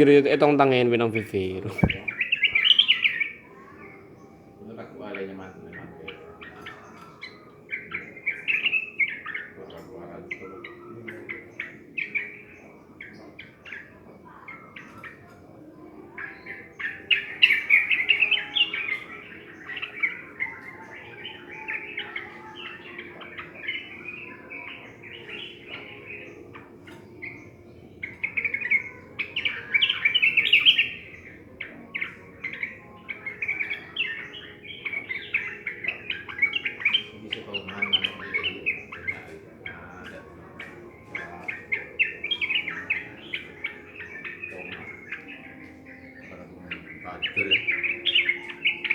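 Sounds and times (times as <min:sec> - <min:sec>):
bulbuls singing: 0:00.0 - 0:48.9.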